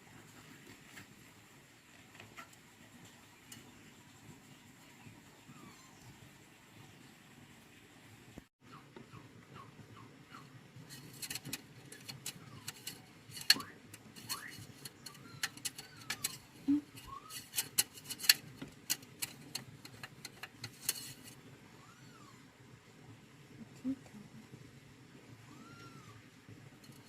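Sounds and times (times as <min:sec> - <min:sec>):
sharp clicks and clinks: 0:10.9 - 0:21.4.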